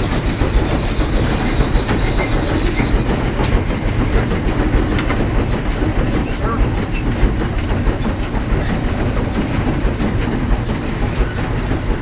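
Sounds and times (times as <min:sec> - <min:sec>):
wheels clattering on rails: 0:00.0 - 0:12.0.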